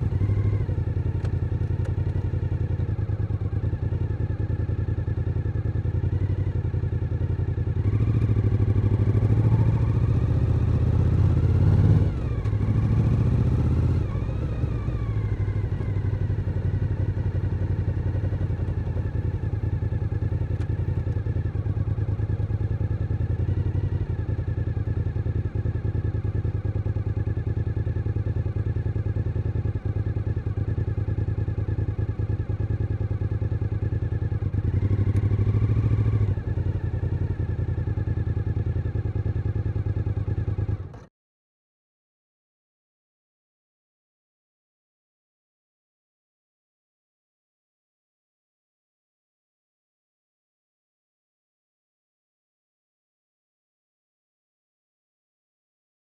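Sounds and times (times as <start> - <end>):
motorcycle engine revving: 0.0 - 4.4, 5.3 - 27.3, 33.1 - 41.0.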